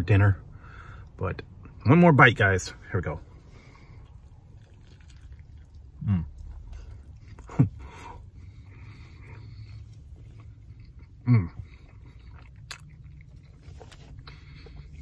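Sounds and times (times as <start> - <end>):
steady low hum: 0.0 - 15.0
person chewing: 3.6 - 15.0
man humming: 6.0 - 6.4.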